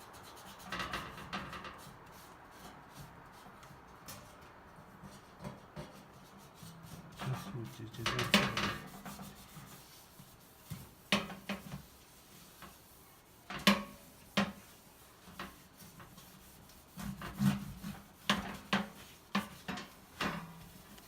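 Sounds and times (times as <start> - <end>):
hard objects knocking and clattering: 8.0 - 9.0.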